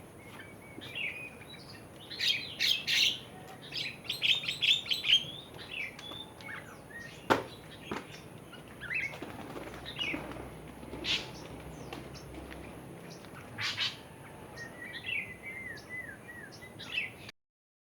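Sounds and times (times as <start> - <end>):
birds chirping and whistling: 0.2 - 12.5.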